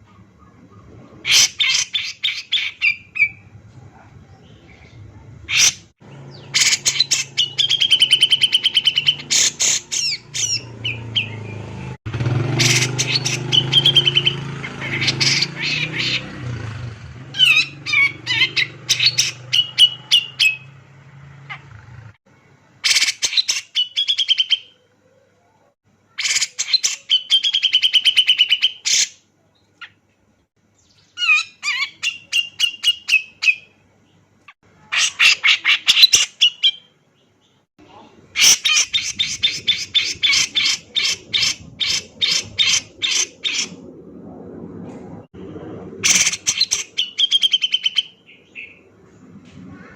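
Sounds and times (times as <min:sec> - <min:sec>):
bird singing rattling phrases: 0:00.0 - 0:25.3, 0:26.0 - 0:49.9.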